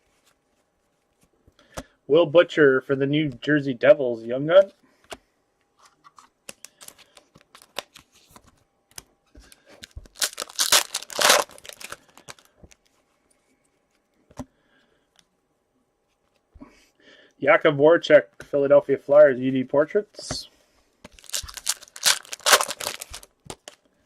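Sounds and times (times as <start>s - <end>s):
cards clicking and rustling: 5.8s - 12.8s, 21.0s - 23.9s
foil wrapper ripping: 10.0s - 12.5s, 21.2s - 23.8s.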